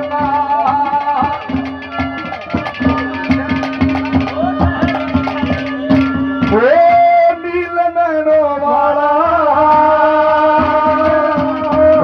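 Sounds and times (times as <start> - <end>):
wavering melody line: 0.0 - 6.8
hand drum beating: 0.0 - 7.2, 9.7 - 12.0.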